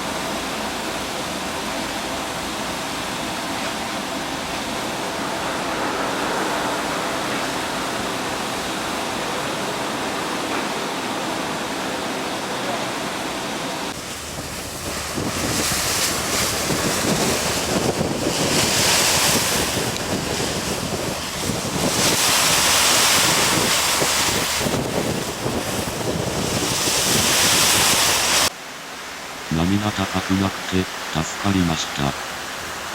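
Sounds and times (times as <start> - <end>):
sea water rushing: 0.0 - 32.9
wind buffeting microphone: 4.6 - 10.4, 13.9 - 28.5.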